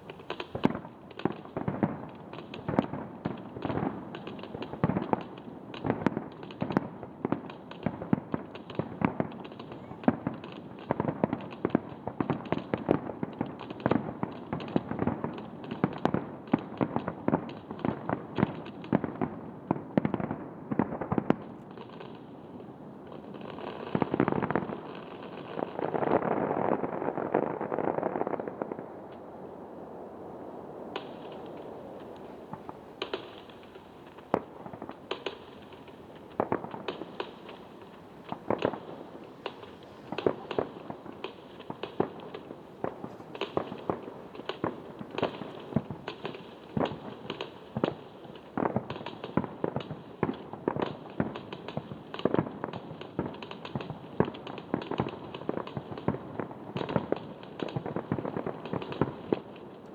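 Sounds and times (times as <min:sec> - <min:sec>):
fireworks bangs and cracks: 0:00.0 - 0:59.9.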